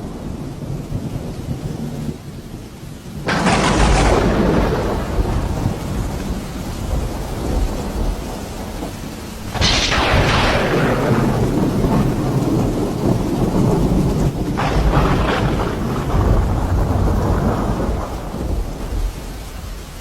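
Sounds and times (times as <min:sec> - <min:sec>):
steady rain: 0:00.0 - 0:20.0
thunder rumbling: 0:03.1 - 0:20.0
sharp thunder crack: 0:03.3 - 0:08.2, 0:09.4 - 0:19.2.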